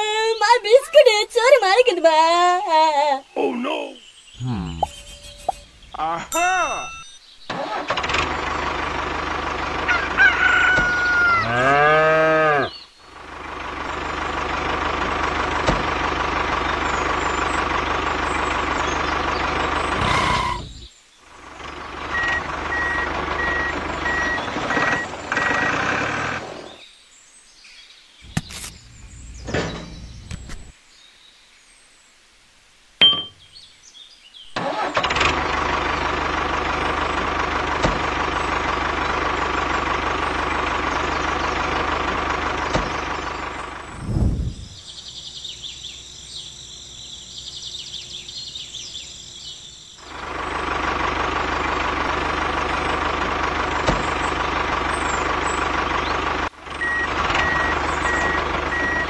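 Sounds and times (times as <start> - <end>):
high beeps: 4.4 - 5.7, 6.3 - 7.3, 22.2 - 25.1, 56.8 - 59.0
tractor engine running: 7.5 - 11.6, 13.0 - 26.8, 28.3 - 30.8, 34.6 - 44.8, 49.4 - 59.0
rooster crowing: 9.8 - 12.7.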